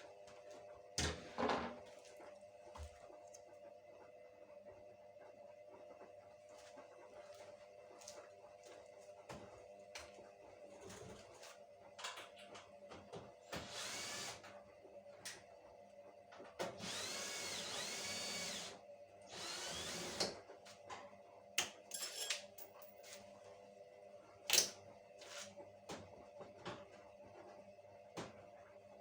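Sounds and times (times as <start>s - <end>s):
power drill running: 13.6s - 14.4s, 16.8s - 18.7s, 19.3s - 20.3s.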